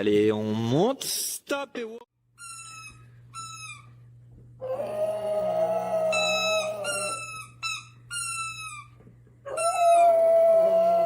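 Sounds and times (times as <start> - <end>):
dog howling: 4.6 - 7.6, 9.5 - 11.0
dog yipping: 4.6 - 11.0.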